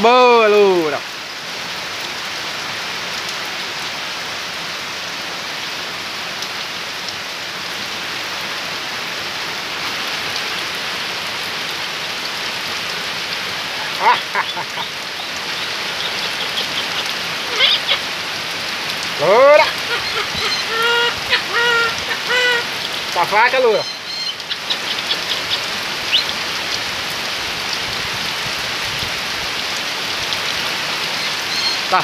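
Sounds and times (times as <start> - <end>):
heavy rain pouring: 0.0 - 32.0
parrot call: 13.7 - 18.2, 19.2 - 26.4, 31.1 - 32.0.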